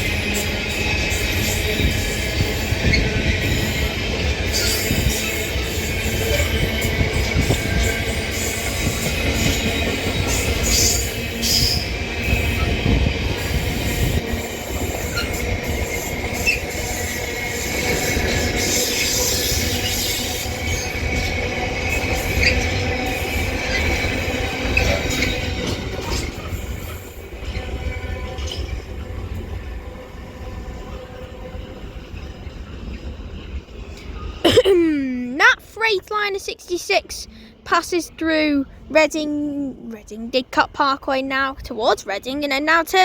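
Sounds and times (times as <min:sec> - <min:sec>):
rail joint clicks: 0:00.0 - 0:29.6
train wheels rumbling on rail: 0:00.0 - 0:34.4.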